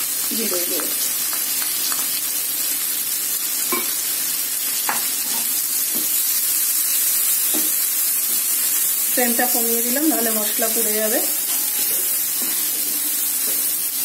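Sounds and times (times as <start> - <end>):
masala sizzling in hot oil: 0.0 - 14.0
spatula scraping a pan: 11.4 - 13.7.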